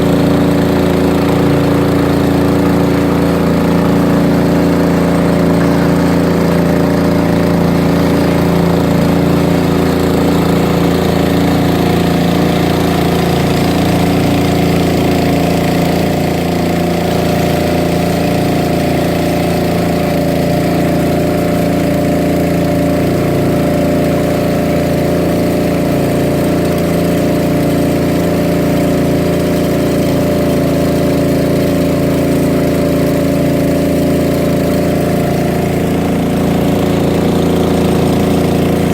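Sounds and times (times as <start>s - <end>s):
boat engine running steadily: 0.0s - 38.9s.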